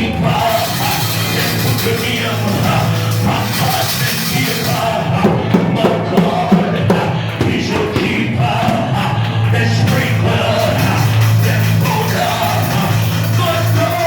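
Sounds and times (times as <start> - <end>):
loud praise music: 0.0 - 14.0
congregation shouting praise: 4.2 - 14.0
drum hits: 5.2 - 10.2.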